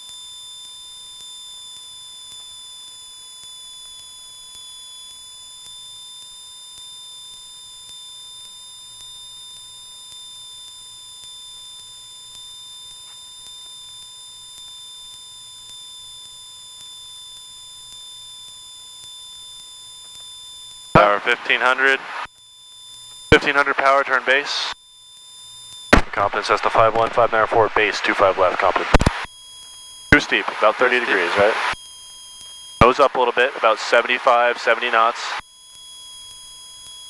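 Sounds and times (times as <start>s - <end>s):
faint low hum: 21.0s - 22.3s, 23.3s - 24.8s, 26.0s - 29.3s, 30.2s - 31.8s, 32.8s - 35.4s
high electrical whine: 26.0s - 29.3s, 30.2s - 31.8s.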